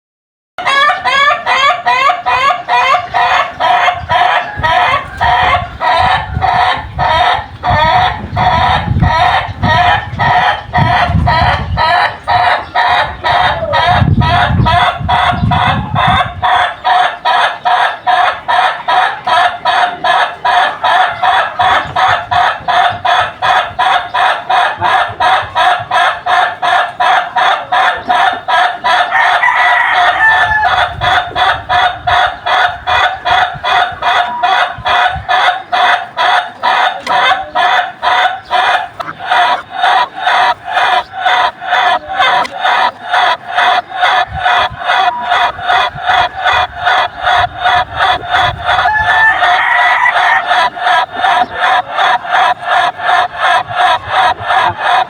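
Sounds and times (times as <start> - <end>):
rooster crowing: 29.0 - 30.9, 48.7 - 50.7.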